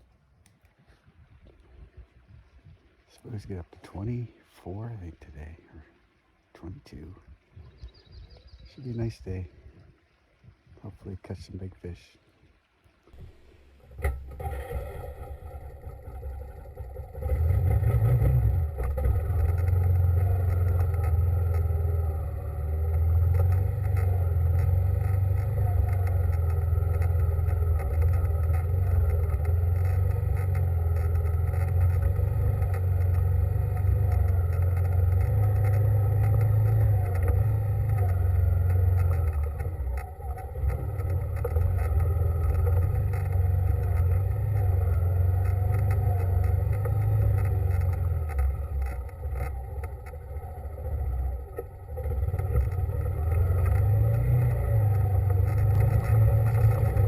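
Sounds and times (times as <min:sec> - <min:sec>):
vehicle engine droning: 0:13.1 - 0:57.0.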